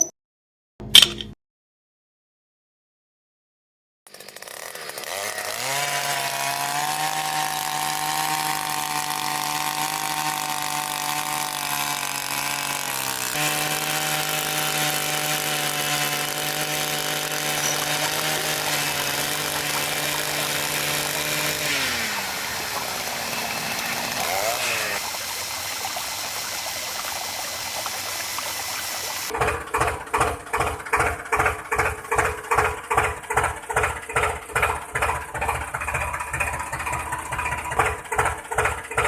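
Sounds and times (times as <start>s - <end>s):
small tractor motor: 4.1s - 39.0s.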